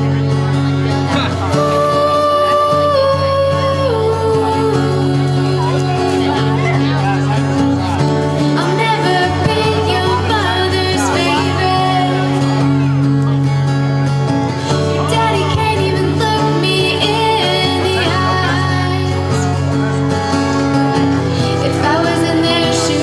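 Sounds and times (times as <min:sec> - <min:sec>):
woman singing: 0:01.2 - 0:07.0, 0:08.4 - 0:12.9, 0:14.6 - 0:20.0, 0:21.2 - 0:23.0.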